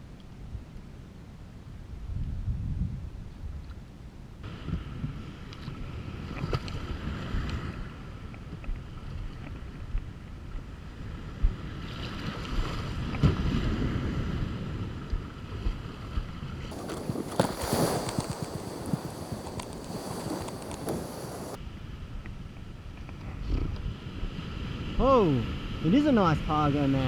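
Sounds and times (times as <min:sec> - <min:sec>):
wind buffeting microphone: 0:02.0 - 0:03.7, 0:16.7 - 0:21.6
water sloshing around kayak: 0:16.7 - 0:21.6.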